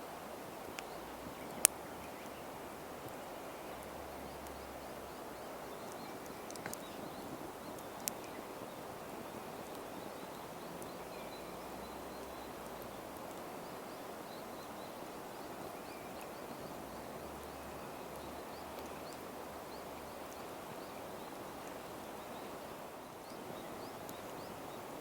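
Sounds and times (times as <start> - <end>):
outdoor background noise: 0.0 - 25.0
faint bird chirps: 3.2 - 25.0
small clicks: 5.9 - 6.9.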